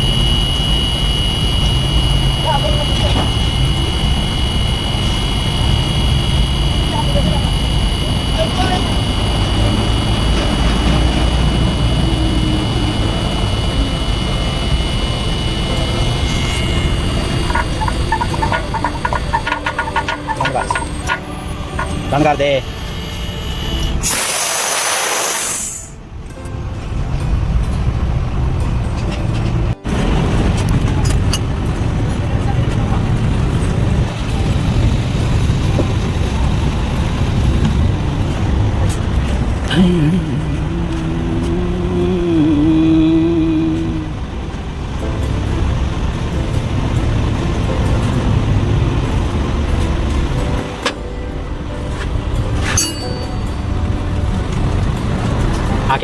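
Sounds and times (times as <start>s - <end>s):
thin high whine: 0.0s - 26.1s
truck engine running: 0.0s - 56.0s.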